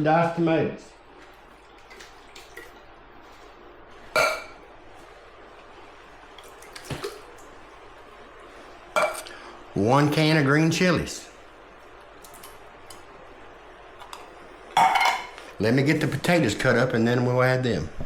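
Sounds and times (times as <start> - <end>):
wet drips and plops: 1.0 - 3.6, 6.3 - 7.6.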